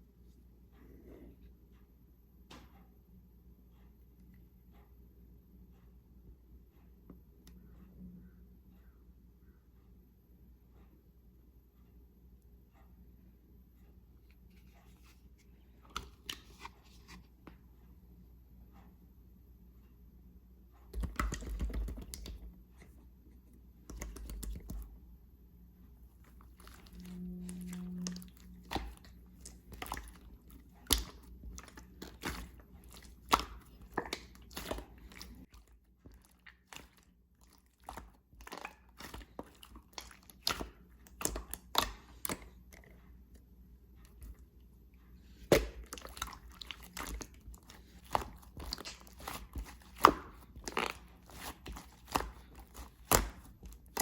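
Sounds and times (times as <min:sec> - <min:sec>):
hands squishing slime: 0:20.9 - 0:22.9, 0:23.8 - 0:24.9, 0:26.2 - 0:43.0, 0:45.3 - 0:54.0.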